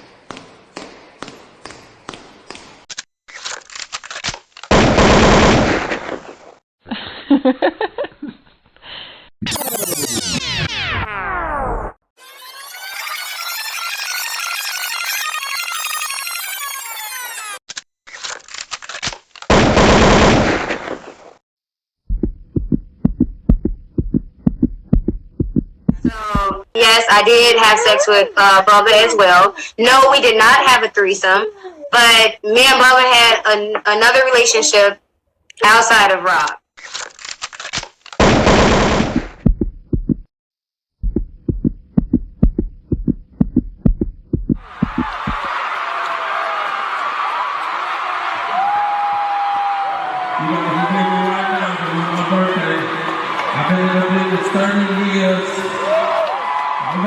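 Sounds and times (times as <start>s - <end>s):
rapid low thumps: 22.1s - 26.7s, 38.4s - 40.3s, 41.0s - 45.5s.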